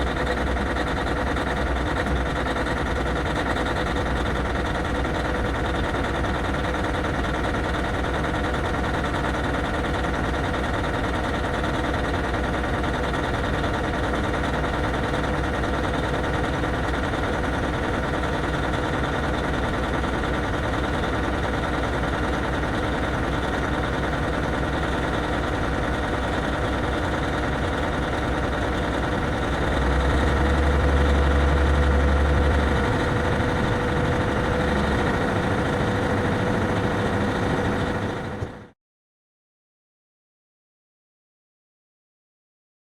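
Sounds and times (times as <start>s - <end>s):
diesel truck engine idling: 0.0s - 38.8s.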